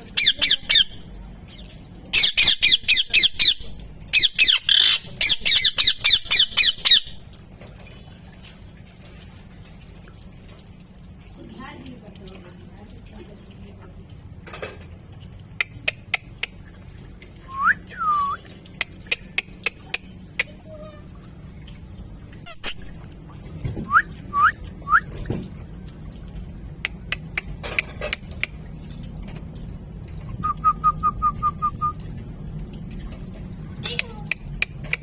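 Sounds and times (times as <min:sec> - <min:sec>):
parrot whistling: 0:17.5 - 0:18.4.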